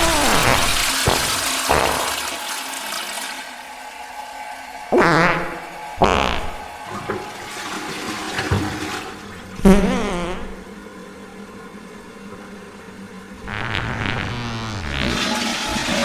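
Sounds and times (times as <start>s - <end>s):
wobbling pitched tone: 0.0s - 2.3s
slowed reverberant toilet flushing: 0.0s - 13.5s, 15.0s - 16.0s.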